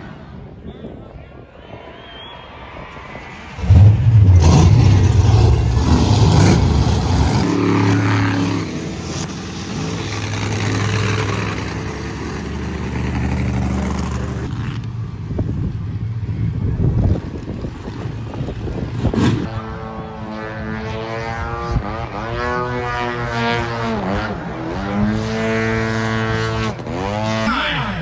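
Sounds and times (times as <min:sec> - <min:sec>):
monster truck engine revving: 0:03.5 - 0:14.7.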